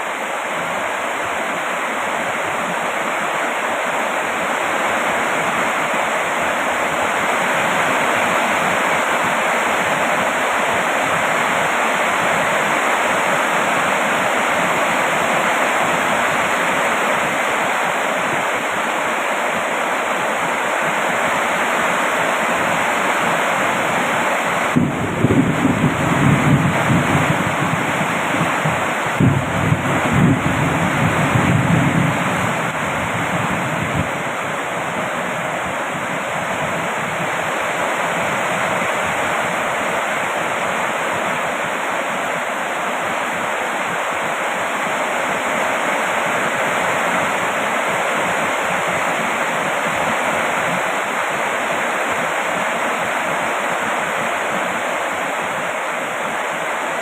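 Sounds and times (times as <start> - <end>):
heavy rain falling: 0.0 - 57.0
wind buffeting microphone: 22.5 - 40.0.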